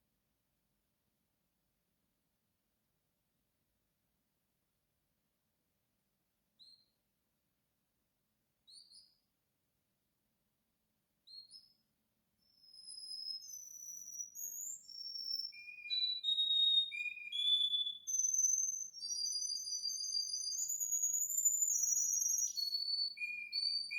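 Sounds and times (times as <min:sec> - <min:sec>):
canary singing: 0:12.6 - 0:23.9.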